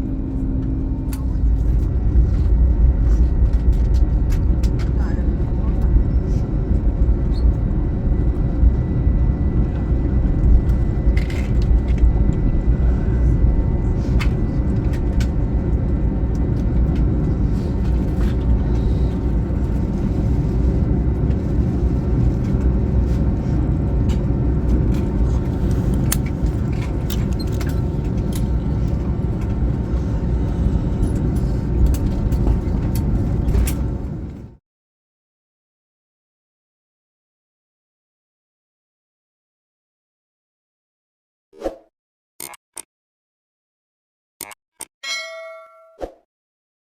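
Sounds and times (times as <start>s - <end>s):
aircraft cabin rumble: 0.0s - 34.6s.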